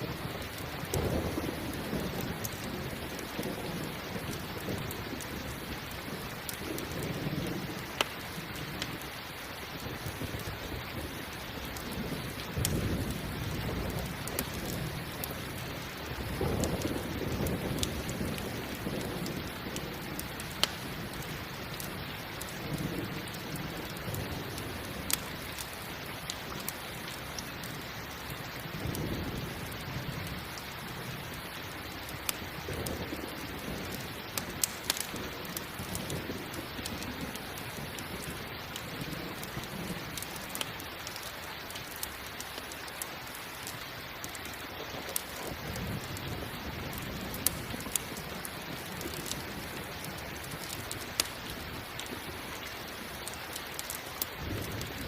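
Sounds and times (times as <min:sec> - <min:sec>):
thunder rumbling: 0:00.0 - 0:09.0, 0:09.8 - 0:40.6, 0:44.8 - 0:53.3, 0:54.4 - 0:55.0
heavy rain: 0:00.0 - 0:55.0.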